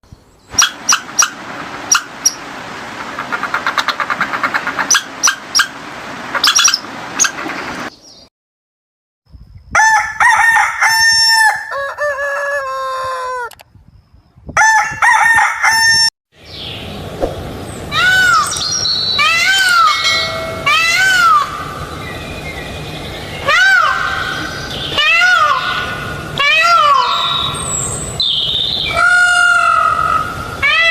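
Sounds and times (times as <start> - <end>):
rooster crowing: 9.8 - 13.6, 14.6 - 16.1
short rising-and-falling calls: 17.6 - 30.9
sharp clicking chirps: 18.5 - 19.0.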